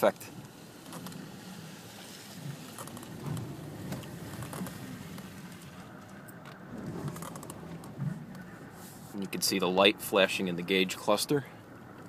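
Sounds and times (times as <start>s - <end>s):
tyres hissing on snowy road: 0.0s - 6.2s, 8.6s - 9.2s.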